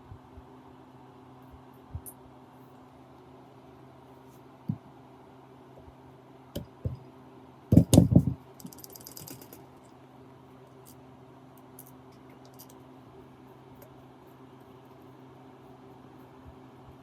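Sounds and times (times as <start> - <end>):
hard parts knocking and clicking: 7.7 - 9.6.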